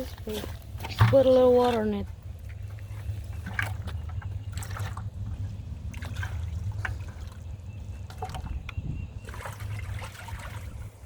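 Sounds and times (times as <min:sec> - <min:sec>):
steady low rumble: 0:00.0 - 0:11.0
water pouring into bucket: 0:09.2 - 0:10.9.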